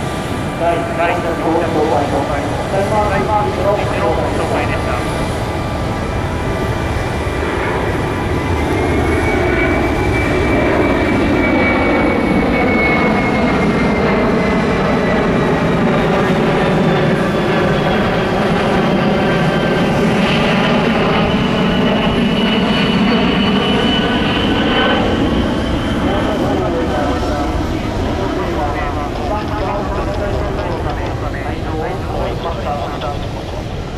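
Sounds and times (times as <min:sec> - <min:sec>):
jet engines roaring with high whine: 0:00.0 - 0:33.9.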